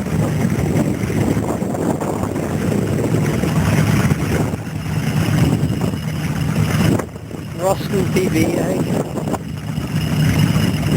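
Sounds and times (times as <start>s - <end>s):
stationary engines chuffing: 0.0s - 10.9s.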